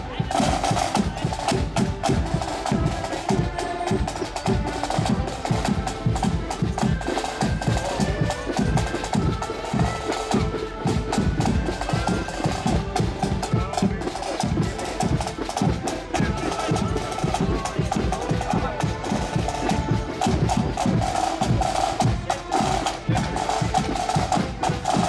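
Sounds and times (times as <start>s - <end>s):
accordions playing melody: 0.0s - 25.0s
bass drum and snare march beat: 0.0s - 25.0s.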